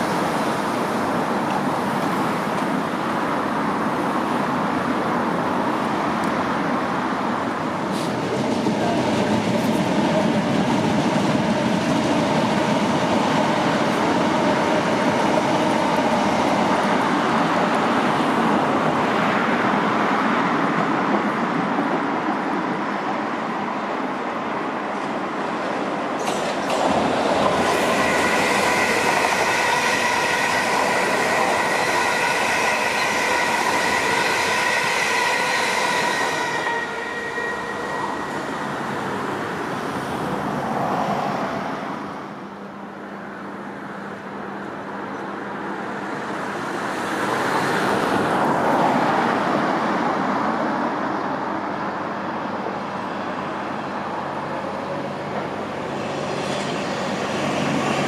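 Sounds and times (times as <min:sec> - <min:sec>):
trains rumbling past: 0:00.0 - 0:58.0
high-pitched wheel squeal: 0:27.9 - 0:39.2.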